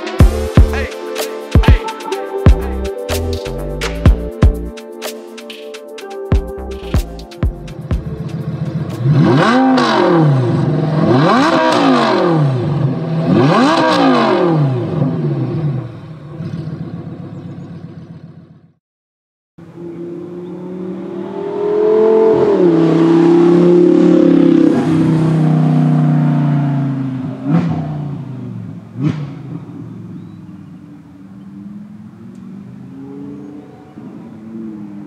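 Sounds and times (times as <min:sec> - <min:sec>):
sports car engine accelerating: 0:06.4 - 0:18.5, 0:19.6 - 0:35.0.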